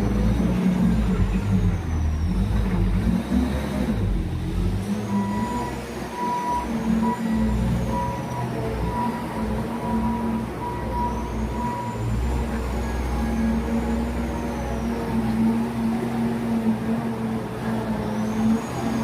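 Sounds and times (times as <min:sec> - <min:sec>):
diesel engine rumbling: 0:00.0 - 0:19.0
high beeping tone: 0:05.1 - 0:13.1.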